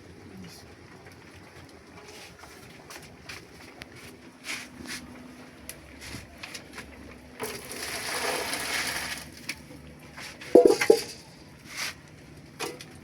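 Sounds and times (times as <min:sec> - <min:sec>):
pot and utensils clinking: 0:10.5 - 0:11.3.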